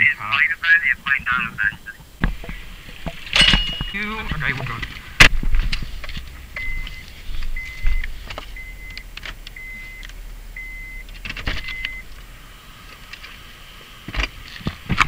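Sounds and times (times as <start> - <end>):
short electronic beeps: 6.6 - 9.0, 9.6 - 12.1.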